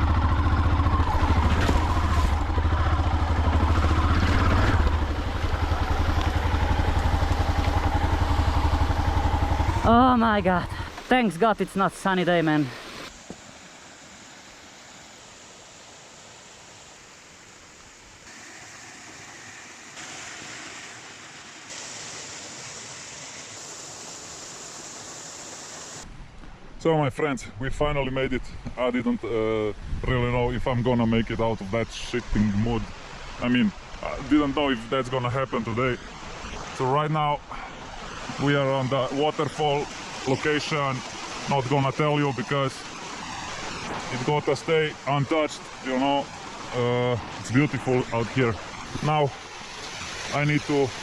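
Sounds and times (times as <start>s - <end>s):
motorcycle engine pulsing: 0.0s - 11.0s
waterfall rushing: 0.0s - 26.0s, 32.8s - 51.0s.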